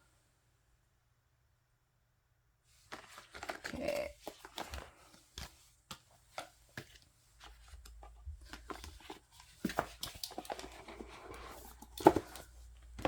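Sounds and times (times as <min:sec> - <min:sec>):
paper and cardboard rustling: 0:02.7 - 0:13.0.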